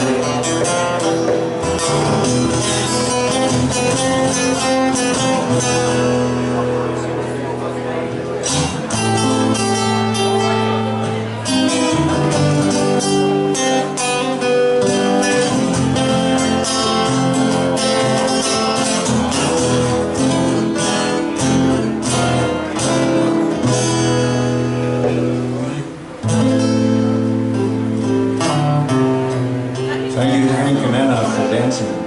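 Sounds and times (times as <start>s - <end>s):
lead guitar picking runs: 0.0s - 32.0s
rhythm guitar strumming chords: 0.0s - 32.0s.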